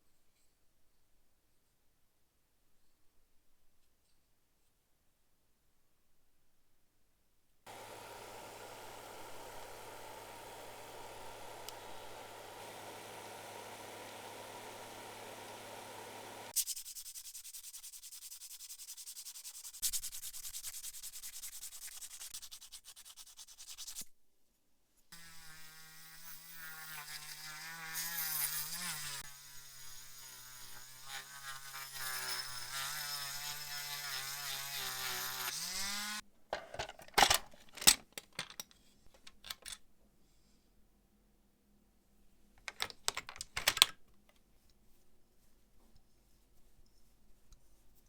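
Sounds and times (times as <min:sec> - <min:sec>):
small electric motor humming: 0:07.7 - 0:16.6, 0:25.2 - 0:36.2
rubbing or sanding strokes: 0:16.4 - 0:24.0.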